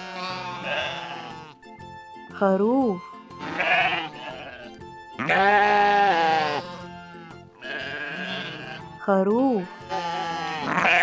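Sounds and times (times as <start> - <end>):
sheep bleating: 0.0 - 1.6, 3.4 - 9.0, 9.7 - 11.0.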